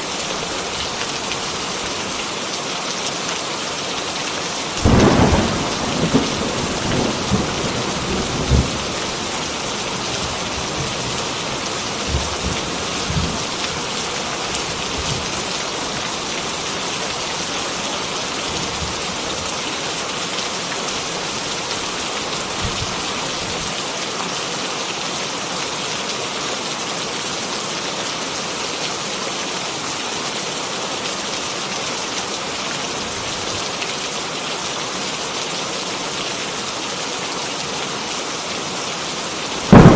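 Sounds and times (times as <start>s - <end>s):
heavy rain pouring: 0.0s - 39.9s
thunder rumbles: 4.8s - 13.6s, 39.6s - 39.9s.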